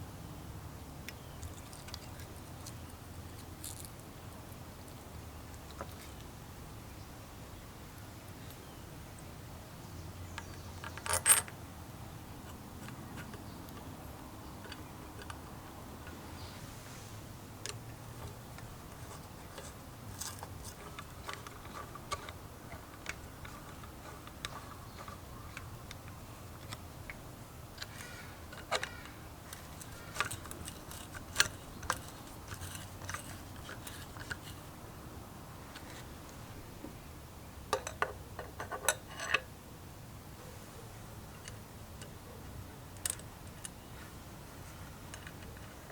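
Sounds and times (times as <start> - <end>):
metal parts and tools clicking: 1.4 - 4.1, 10.4 - 11.6, 12.4 - 16.2, 17.6 - 34.9, 45.0 - 45.9.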